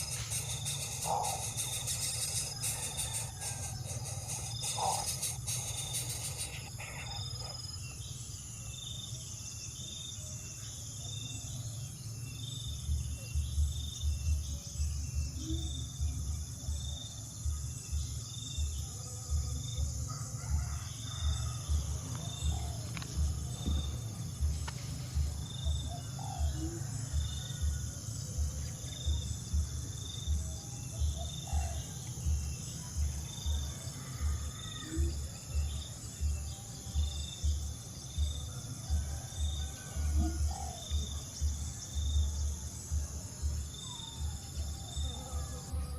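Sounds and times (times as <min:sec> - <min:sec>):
bird calls: 0:00.0 - 0:07.6
insects trilling: 0:00.0 - 0:45.9
low regular pulse: 0:21.3 - 0:31.2.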